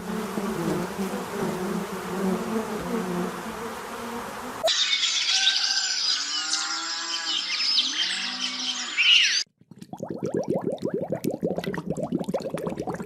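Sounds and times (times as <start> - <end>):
birds chirping: 4.7 - 9.5.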